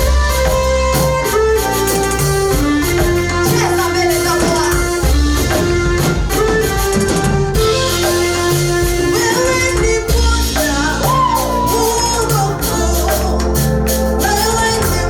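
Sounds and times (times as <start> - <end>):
guitar bass and drums: 0.0 - 15.0
group singing: 9.0 - 15.0.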